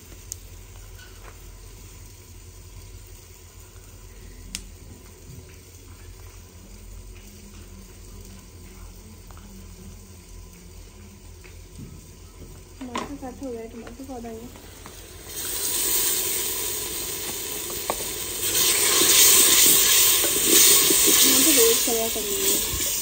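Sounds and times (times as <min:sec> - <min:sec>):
onions frying in oil: 0:00.0 - 0:23.0
sharp crackle: 0:14.2 - 0:23.0.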